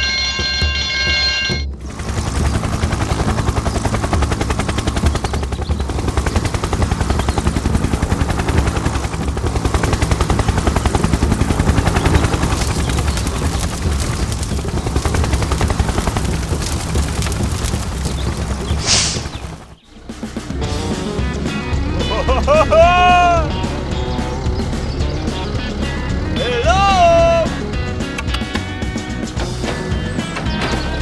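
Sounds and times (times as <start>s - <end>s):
small motor chattering: 11.8s - 18.8s, 28.2s - 29.3s.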